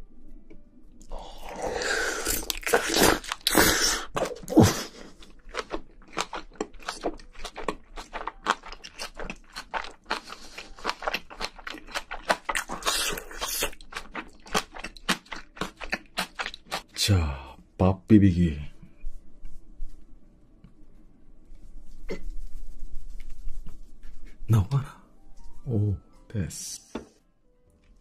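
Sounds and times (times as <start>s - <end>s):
loud wet slurping and crunching: 1.4s - 16.9s
wet chewing smacks: 5.0s - 16.8s.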